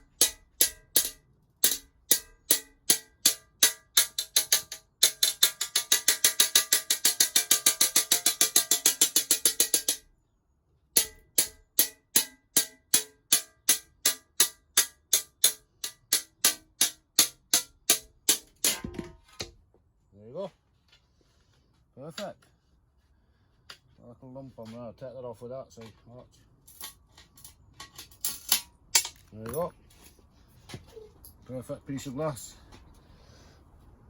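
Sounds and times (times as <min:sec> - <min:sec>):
glass cutter tapping glass: 0:00.2 - 0:10.0.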